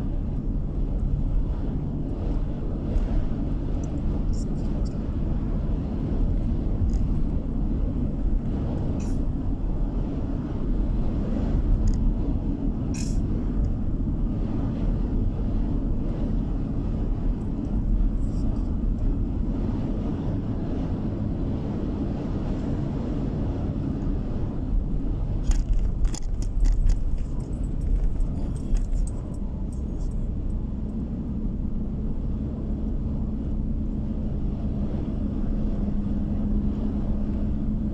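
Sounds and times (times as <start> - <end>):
road and engine rumble: 0.0 - 37.9
sharp clicks and ticks: 25.4 - 31.0.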